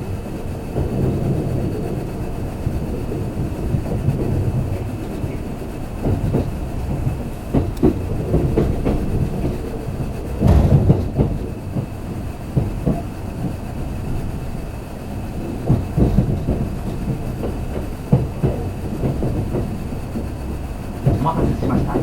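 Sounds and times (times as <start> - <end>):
train wheels rumbling on rails: 0.0 - 22.0
wheel clicks over rail joints: 3.6 - 14.0, 15.4 - 22.0.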